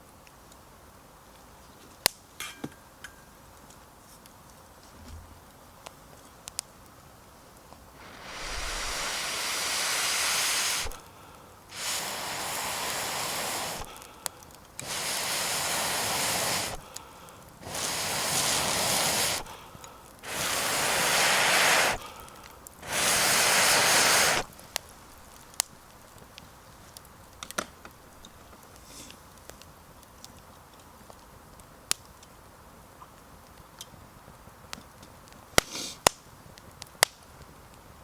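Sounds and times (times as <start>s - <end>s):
breath blown into campfire: 8.0s - 25.6s.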